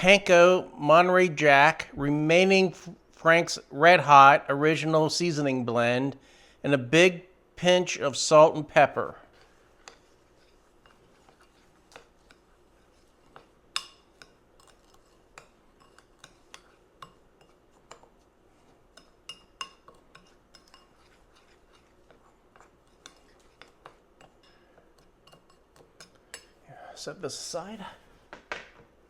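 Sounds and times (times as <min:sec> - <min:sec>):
utensil clinking against bowl: 0:18.9 - 0:26.6.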